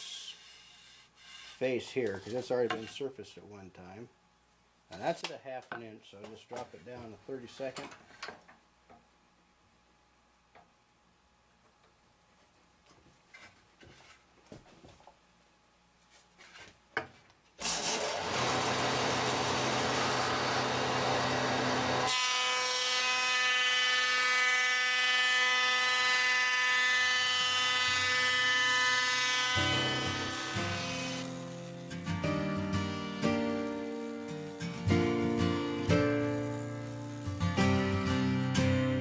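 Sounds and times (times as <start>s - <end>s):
power planer running: 17.7s - 23.0s, 35.8s - 37.2s.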